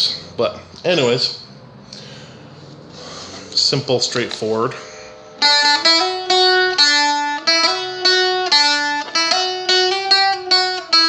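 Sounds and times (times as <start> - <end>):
plucked dulcimer jig melody: 1.7 - 11.0.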